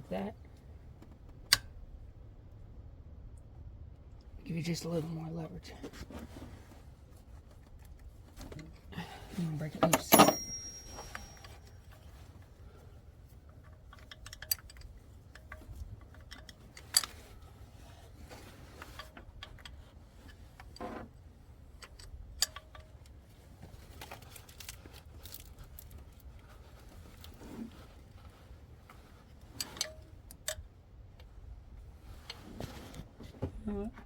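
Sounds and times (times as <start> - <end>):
wrenches clinking on metal: 9.6 - 11.7.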